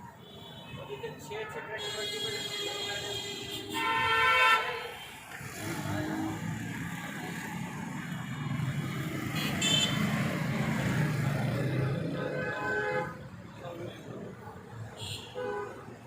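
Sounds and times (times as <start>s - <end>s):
car horn honking: 1.7s - 5.1s, 9.4s - 10.1s, 12.2s - 13.2s.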